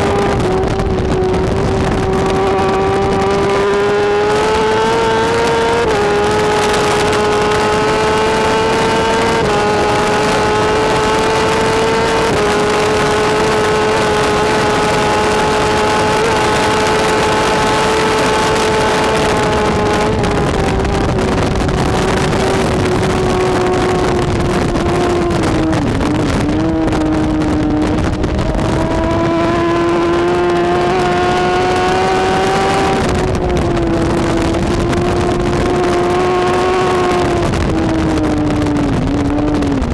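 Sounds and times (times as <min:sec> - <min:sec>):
motorcycle engine at high revs: 0:00.0 - 0:39.9
steady rushing noise: 0:00.0 - 0:39.9.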